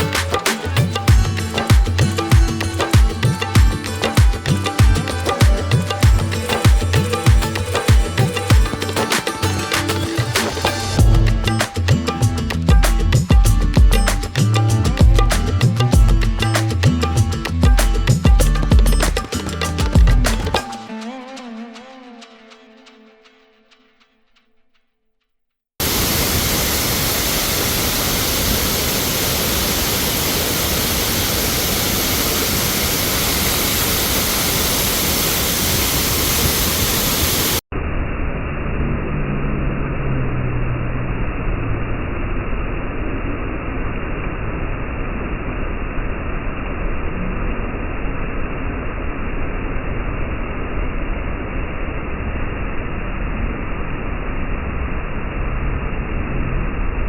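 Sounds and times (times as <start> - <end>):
waterfall rushing: 25.8 - 37.6.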